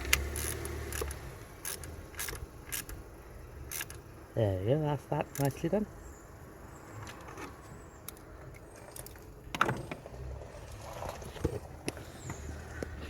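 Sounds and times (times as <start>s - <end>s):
tools and car parts clicking: 0.0s - 3.0s, 3.6s - 4.0s, 5.3s - 5.7s.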